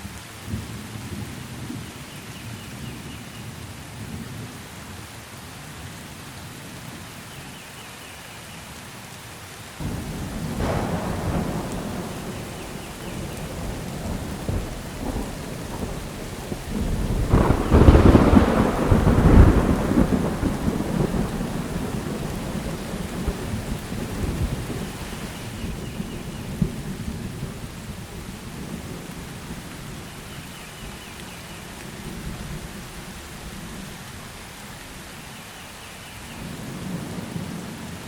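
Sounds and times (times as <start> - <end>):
steady rain: 0.0 - 38.0
rolling thunder: 9.8 - 30.1.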